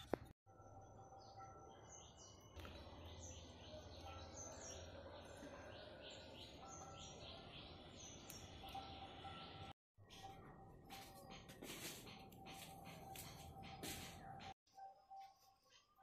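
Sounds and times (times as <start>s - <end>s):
outdoor background noise: 0.0s - 16.0s
birds chirping: 1.2s - 11.5s.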